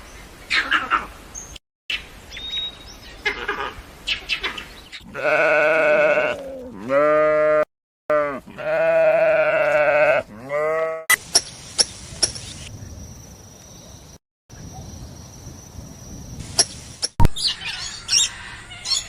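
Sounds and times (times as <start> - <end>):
sheep bleating: 5.0 - 11.1.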